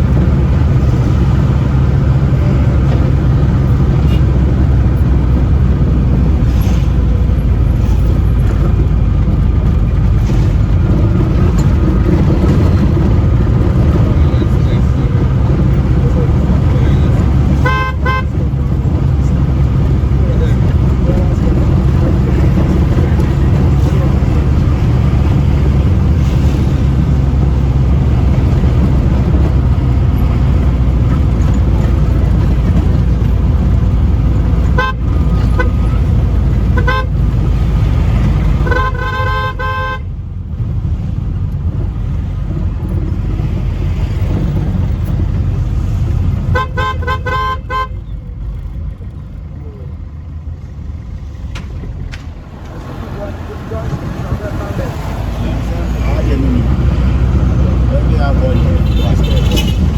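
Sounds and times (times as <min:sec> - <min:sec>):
vehicle engine and road rumble: 0:00.0 - 0:59.9
car horn beeps: 0:17.6 - 0:18.5, 0:34.7 - 0:35.9, 0:36.7 - 0:37.2, 0:38.6 - 0:40.1, 0:46.5 - 0:48.1, 0:58.6 - 0:59.9.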